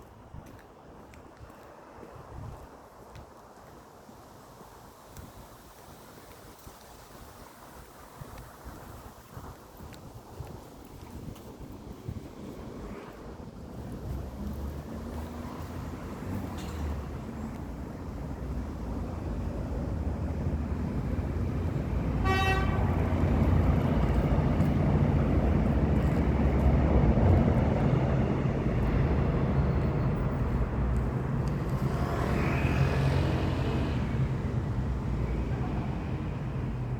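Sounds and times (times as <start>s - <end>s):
road vehicle rumble: 0.0s - 36.9s
short horn toot: 22.2s - 22.9s.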